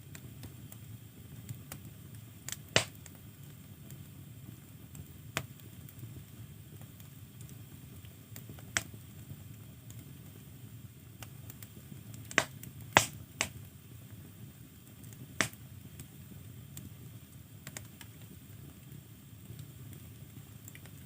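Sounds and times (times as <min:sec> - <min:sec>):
firewood crackling and popping: 0:00.0 - 0:21.0.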